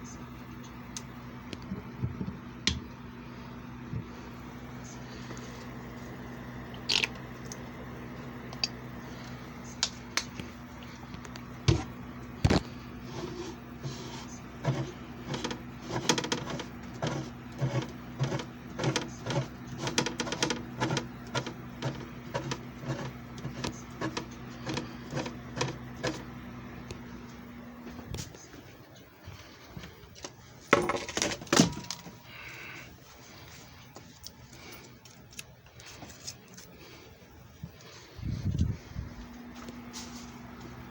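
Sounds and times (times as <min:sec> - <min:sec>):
electric motor humming: 0:03.0 - 0:28.2.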